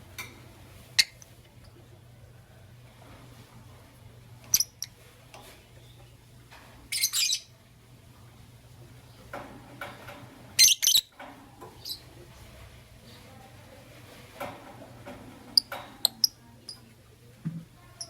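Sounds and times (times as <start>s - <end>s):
lovebirds chirping and squawking: 0.9s - 1.3s, 4.4s - 7.6s, 9.9s - 12.2s, 15.0s - 16.9s.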